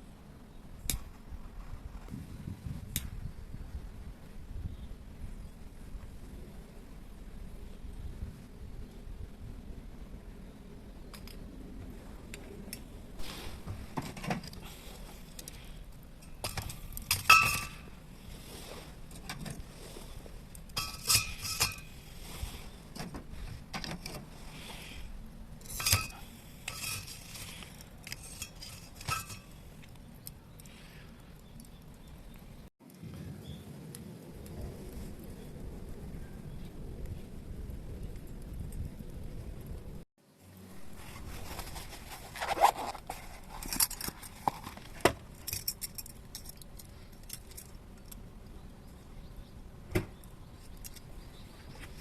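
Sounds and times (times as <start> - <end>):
cookware clinking and rattling: 28.3 - 29.5.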